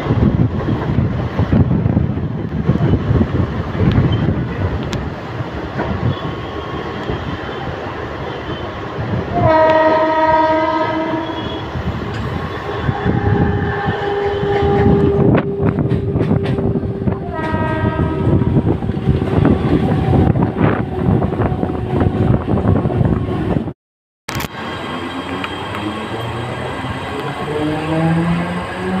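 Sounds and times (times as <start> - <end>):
train rumbling: 0.0 - 29.0
train horn blast: 9.3 - 11.8, 12.6 - 23.5.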